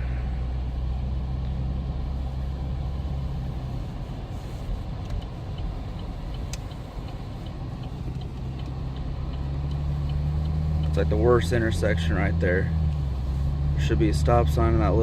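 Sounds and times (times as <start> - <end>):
car engine heard from inside: 0.0 - 15.0
faint light ticking: 3.7 - 11.4.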